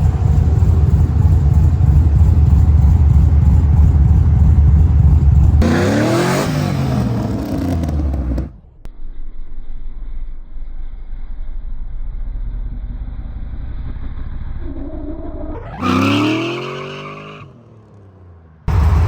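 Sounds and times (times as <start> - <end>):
race car engine revving: 0.0 - 8.8, 18.7 - 19.0.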